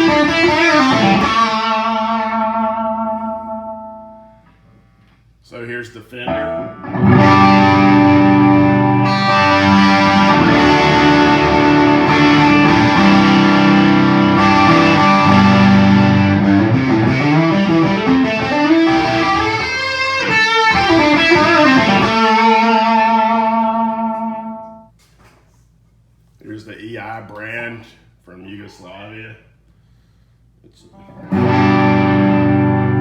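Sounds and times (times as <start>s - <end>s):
electric guitar through amp: 0.0s - 4.4s, 6.3s - 24.9s, 31.0s - 33.0s.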